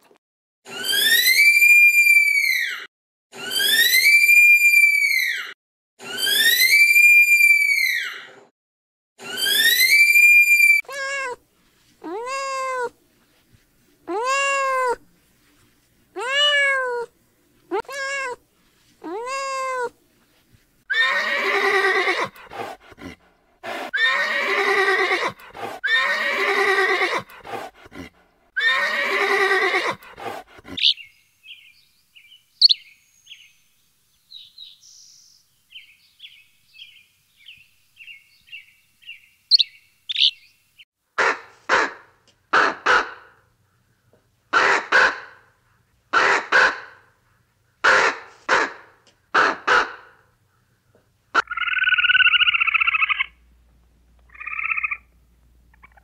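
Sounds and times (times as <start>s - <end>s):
long wavering animal calls: 0.7s - 8.2s, 9.2s - 11.3s, 51.4s - 53.4s, 54.3s - 55.1s
cat meow: 16.2s - 17.1s, 17.8s - 18.4s.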